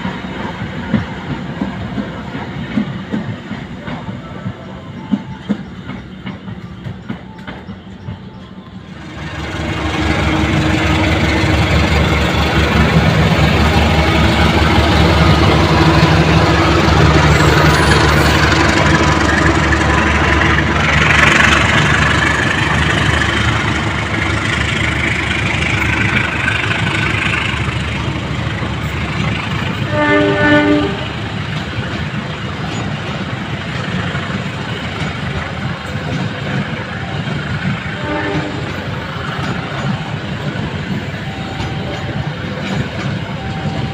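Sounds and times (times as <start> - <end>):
train wheels rumbling on rails: 0.0 - 43.9
train horn: 9.0 - 15.9, 29.7 - 31.3, 37.8 - 39.9.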